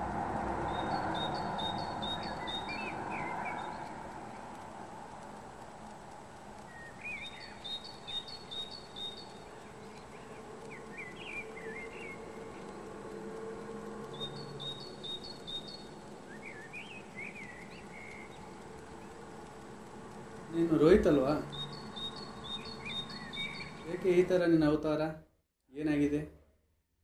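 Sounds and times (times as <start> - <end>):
steady background hiss: 0.0 - 25.2
warbling bird calls: 0.7 - 4.5, 6.6 - 13.0, 14.0 - 19.2, 20.4 - 24.3.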